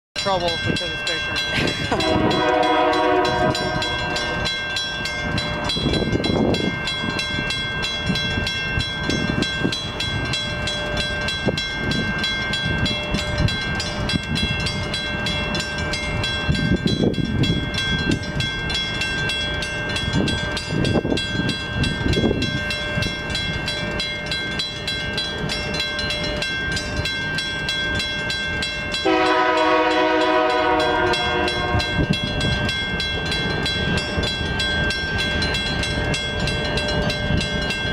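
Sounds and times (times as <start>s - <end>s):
train wheels on rails: 0.2s - 37.9s
locomotive air horn: 2.0s - 4.3s, 29.0s - 32.0s.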